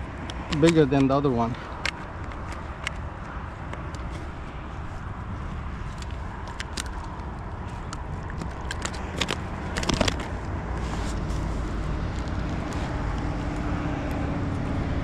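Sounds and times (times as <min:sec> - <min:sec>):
wind buffeting microphone: 0:00.0 - 0:15.0
small clicks and knocks: 0:00.2 - 0:04.2, 0:05.9 - 0:10.8.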